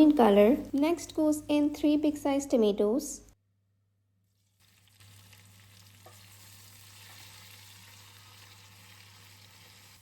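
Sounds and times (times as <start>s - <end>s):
vegetables sizzling in hot oil: 4.4s - 10.0s.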